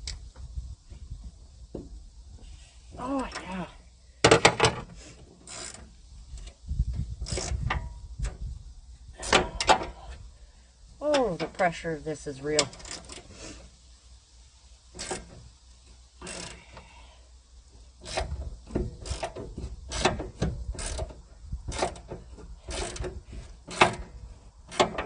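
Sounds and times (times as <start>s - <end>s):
ratchet wrench clicking: 5.5s - 6.6s, 7.2s - 7.8s, 16.2s - 16.9s, 19.0s - 22.1s, 22.7s - 23.1s.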